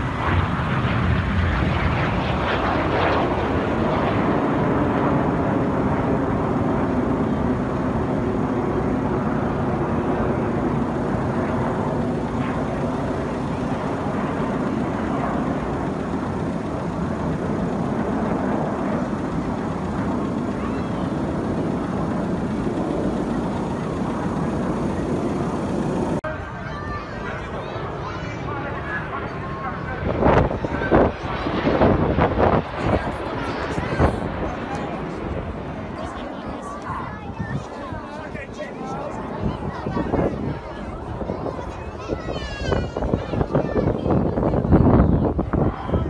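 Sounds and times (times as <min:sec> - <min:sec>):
jets flying past: 0:00.0 - 0:46.0.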